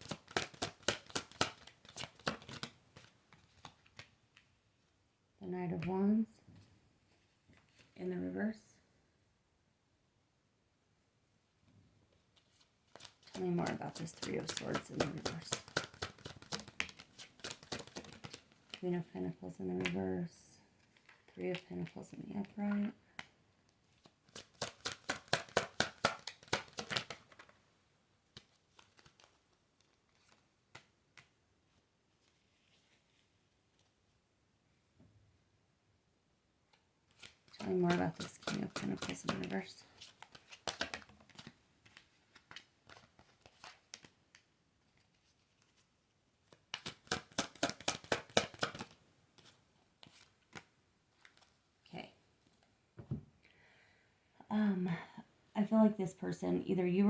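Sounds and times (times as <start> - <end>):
cards tapped down: 0.0 - 4.1, 13.0 - 18.8, 24.3 - 27.5, 37.2 - 39.5, 40.2 - 43.2, 46.7 - 51.5
cards being shuffled: 0.0 - 4.5, 12.4 - 18.8, 20.8 - 23.3, 23.9 - 27.6, 28.3 - 31.4, 37.1 - 51.6.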